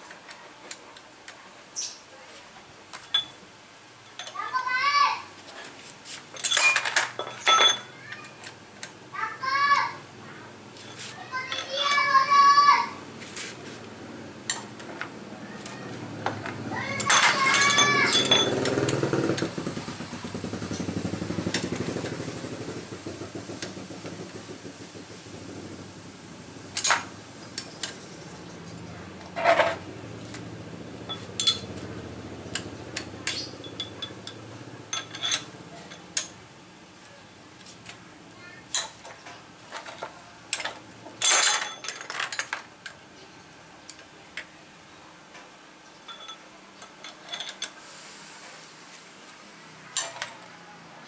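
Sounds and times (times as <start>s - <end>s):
metal tools clinking: 3.0s - 3.4s, 4.0s - 4.6s, 6.3s - 8.6s, 10.8s - 12.3s, 16.8s - 19.4s, 26.8s - 28.0s, 29.3s - 29.8s, 31.0s - 36.4s, 38.7s - 42.6s, 46.1s - 47.8s, 50.0s - 50.5s
low engine hum: 18.0s - 36.1s.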